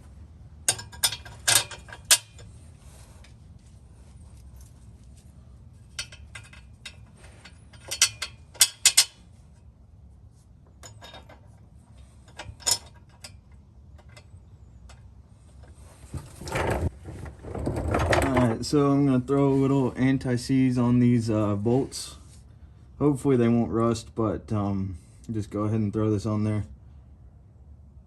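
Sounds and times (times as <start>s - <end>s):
metal tools clicking and clinking: 0.7s - 2.6s, 5.9s - 9.2s, 10.8s - 14.3s.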